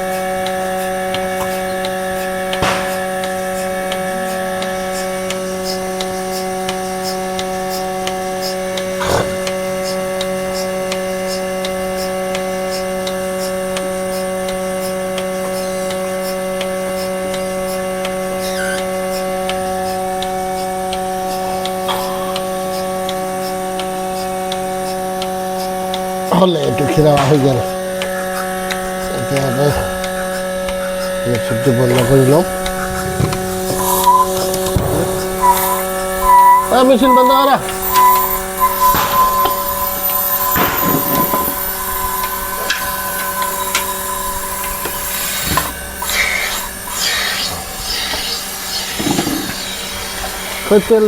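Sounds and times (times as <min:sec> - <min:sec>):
milking machine motor hum: 0:00.0 - 0:51.0
faint regular ticking: 0:27.9 - 0:47.2.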